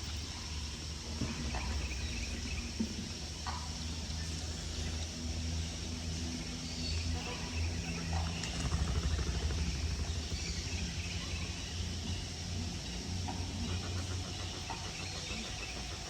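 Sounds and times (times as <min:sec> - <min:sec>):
low motor hum: 0:04.3 - 0:16.0.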